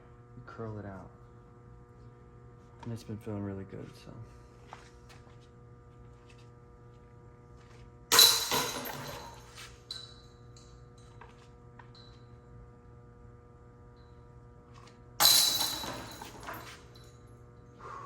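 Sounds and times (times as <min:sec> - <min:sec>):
steady low hum: 0:00.0 - 0:18.0
disc hitting metal chains: 0:08.1 - 0:10.2, 0:15.2 - 0:17.1.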